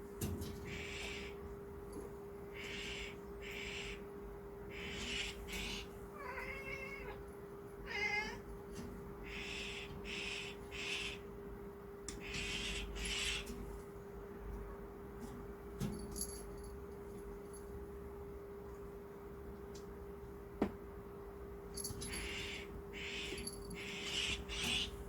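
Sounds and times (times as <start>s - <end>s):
steady low hum: 0.0s - 25.0s
cat meowing: 6.1s - 8.5s.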